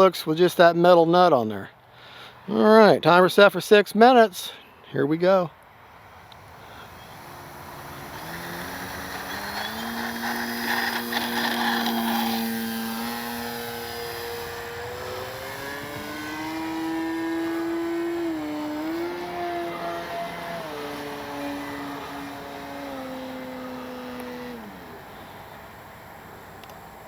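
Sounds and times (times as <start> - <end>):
electric motor and propeller whine: 5.9 - 27.0.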